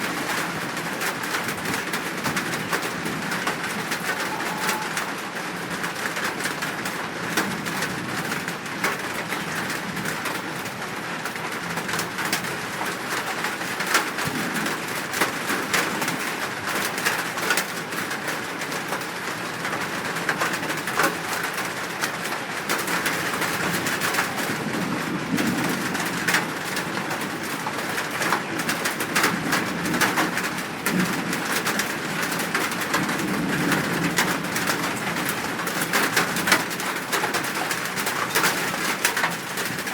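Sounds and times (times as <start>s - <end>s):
birds cooing: 2.8s - 5.7s.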